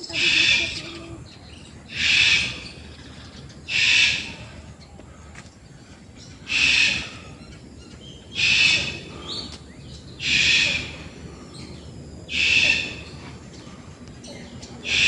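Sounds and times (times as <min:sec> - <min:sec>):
bird harsh hissing call: 0:00.1 - 0:01.0, 0:01.9 - 0:04.5, 0:06.4 - 0:07.4, 0:08.3 - 0:09.5, 0:10.2 - 0:13.2.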